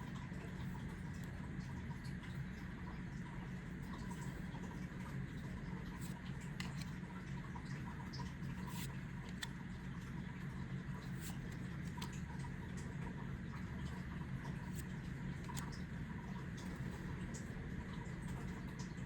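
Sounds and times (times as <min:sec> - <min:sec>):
cards sliding and ticking: 0:06.0 - 0:07.0, 0:08.6 - 0:09.6, 0:11.1 - 0:12.2, 0:14.6 - 0:15.7.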